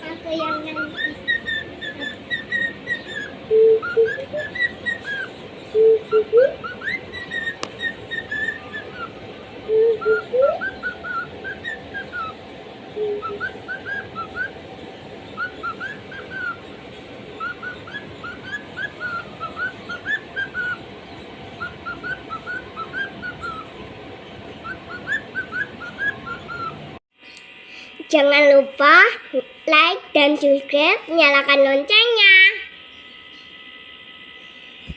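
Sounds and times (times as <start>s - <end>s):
bird singing high chirps: 0.2s - 12.4s, 13.0s - 14.6s, 15.3s - 16.8s, 17.4s - 26.8s
lower whistle: 0.6s - 12.4s, 13.0s - 14.6s, 15.3s - 16.7s, 17.4s - 20.9s, 21.5s - 23.8s, 24.6s - 26.8s.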